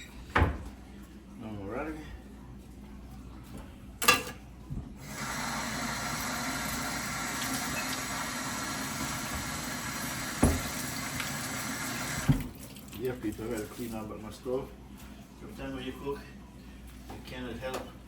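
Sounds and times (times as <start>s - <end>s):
tap water running into sink: 5.0s - 13.0s.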